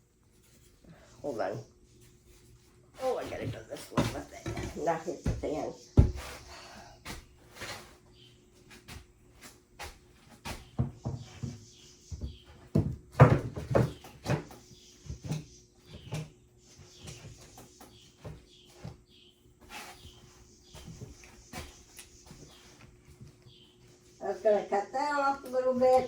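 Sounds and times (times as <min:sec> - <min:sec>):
knocks and clunks of objects: 0:03.1 - 0:08.0, 0:08.7 - 0:19.0.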